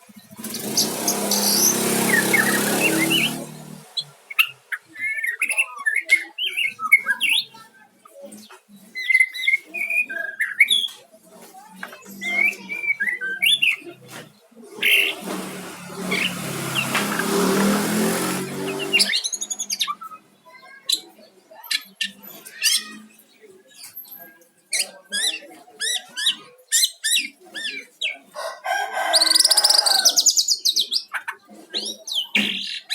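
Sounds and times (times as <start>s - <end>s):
engine hum: 0.1s - 4.7s, 14.1s - 20.4s
bird singing whistles and chirps: 9.0s - 11.0s.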